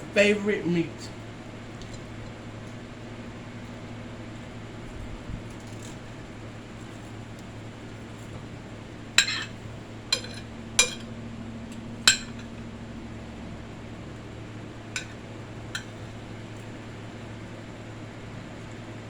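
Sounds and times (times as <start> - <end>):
steady low hum: 0.0 - 19.0
metal utensil clinking on plate: 9.2 - 11.1, 12.1 - 12.5, 15.8 - 16.0.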